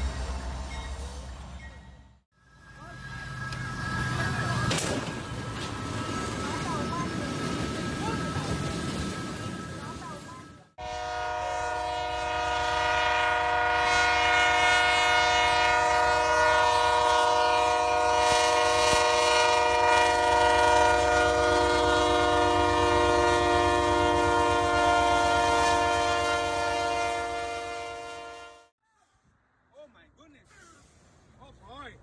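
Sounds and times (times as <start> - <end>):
moving train rumble: 0.0 - 28.6
train air horn blast: 10.8 - 28.7.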